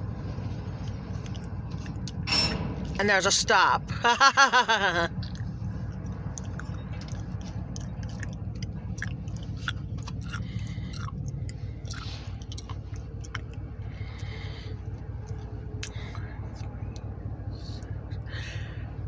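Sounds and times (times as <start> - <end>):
freight train rolling rumble: 0.0 - 19.0
wheels clicking and squeaking: 5.1 - 18.3.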